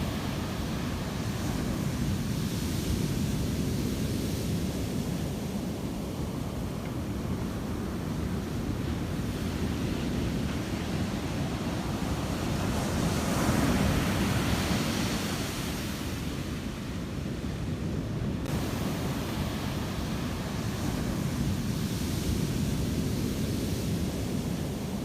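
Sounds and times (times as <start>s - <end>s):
waves washing on a shore: 0.0s - 25.0s
wind rumbling on the microphone: 0.0s - 25.0s.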